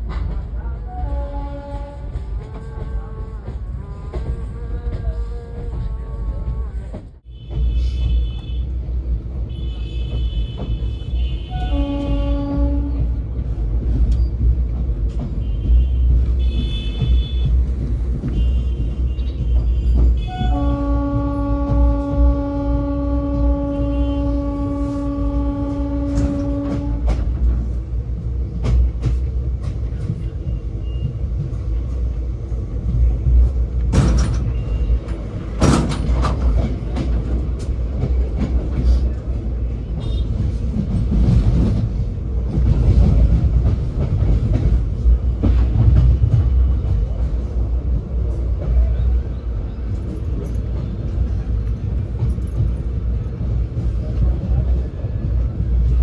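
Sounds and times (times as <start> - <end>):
train rumbling on track: 0.0 - 56.0
train horn: 0.6 - 5.0, 5.6 - 8.8, 9.5 - 13.2, 15.4 - 17.6, 18.3 - 27.4, 39.8 - 40.6.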